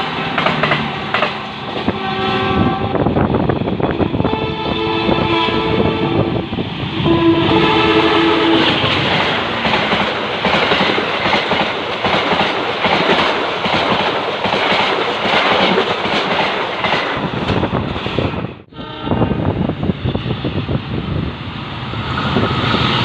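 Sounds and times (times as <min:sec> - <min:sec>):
train wheels clattering over rail joints: 0:00.0 - 0:02.0, 0:08.7 - 0:18.0.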